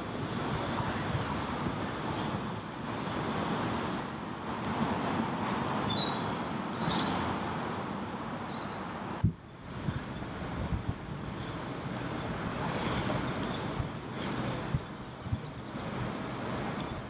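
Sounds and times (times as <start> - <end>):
small birds chirping: 0.0 - 2.0, 2.8 - 10.5, 11.3 - 14.4
outdoor background noise: 0.0 - 17.0.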